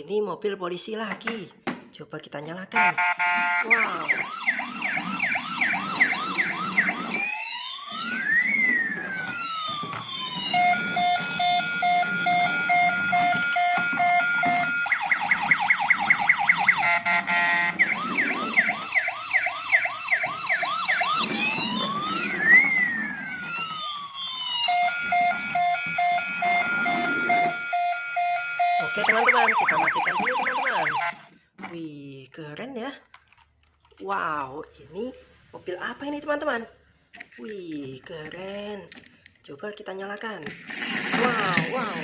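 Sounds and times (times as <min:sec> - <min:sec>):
toy electronic siren: 0:02.8 - 0:31.3.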